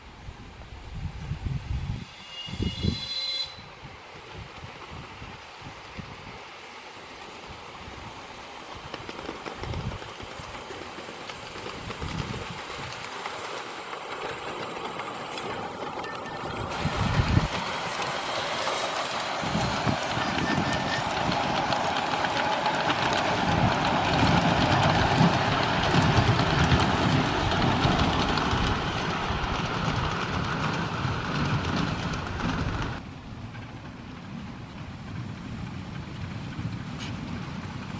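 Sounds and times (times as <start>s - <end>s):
model steam locomotive running: 1.9s - 37.9s.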